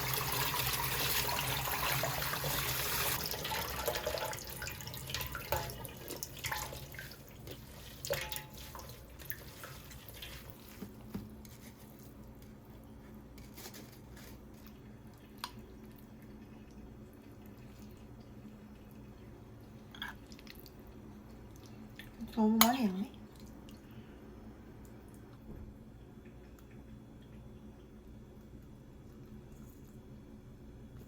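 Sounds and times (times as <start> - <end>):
water dripping: 0.0 - 10.8
faint steady hum: 0.0 - 31.0.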